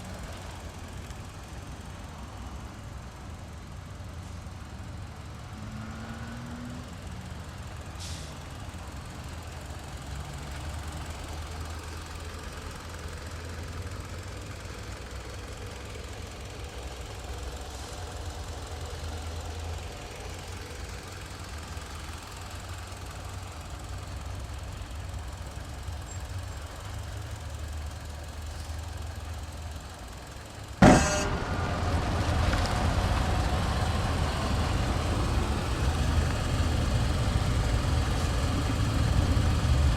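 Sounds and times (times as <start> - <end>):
car engine idling: 7.3 - 39.9
sharp bang: 30.8 - 33.8.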